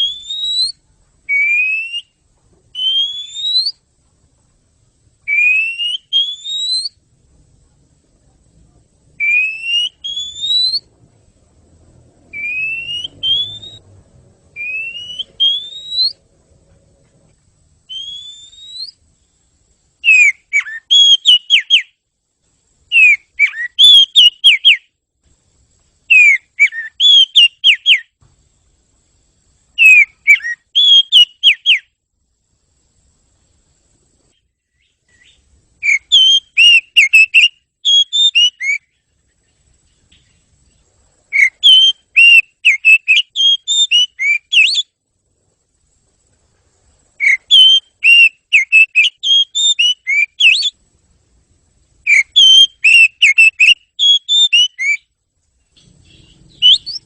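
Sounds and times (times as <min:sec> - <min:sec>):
bird whistling song: 0:00.0 - 0:03.9, 0:05.2 - 0:07.0, 0:09.2 - 0:11.0, 0:12.2 - 0:16.3, 0:17.8 - 0:19.4, 0:20.0 - 0:22.0, 0:22.9 - 0:25.0, 0:26.1 - 0:28.2, 0:29.8 - 0:32.0, 0:34.3 - 0:45.0, 0:47.2 - 0:50.8, 0:52.0 - 0:57.0.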